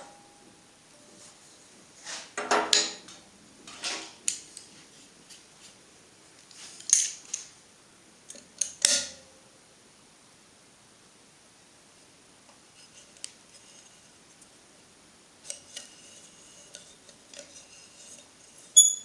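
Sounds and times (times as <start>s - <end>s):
steel tools clinking on metal: 18.8s - 19.0s.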